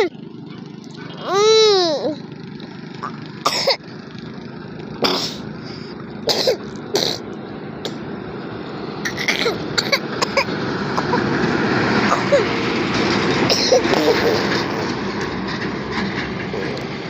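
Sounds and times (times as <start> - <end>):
heavy truck engine rumbling: 0.0 - 17.0.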